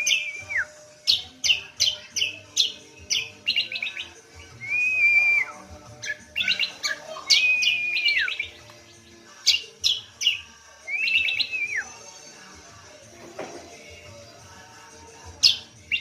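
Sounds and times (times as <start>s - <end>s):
bird sharp chirps: 6.0s - 11.8s
bird whistled note: 6.4s - 8.5s.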